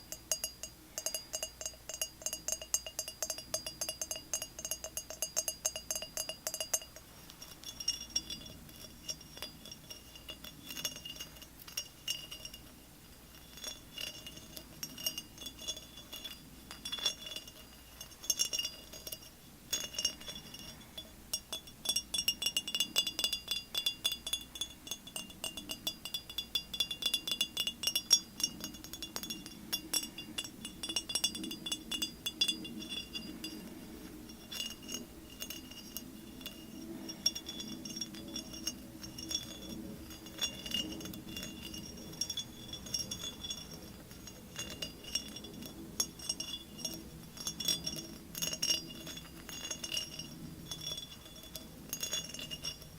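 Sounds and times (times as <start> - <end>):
light tapping on glass: 0.0 - 52.9.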